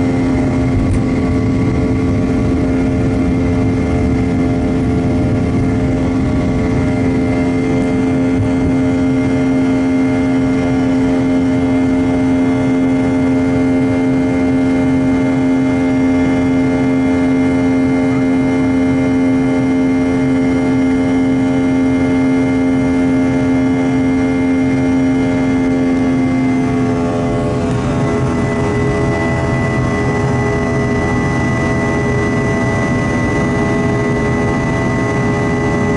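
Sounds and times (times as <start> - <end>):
low rumble: 0.0 - 18.4
jet engines whining during takeoff: 0.0 - 35.9.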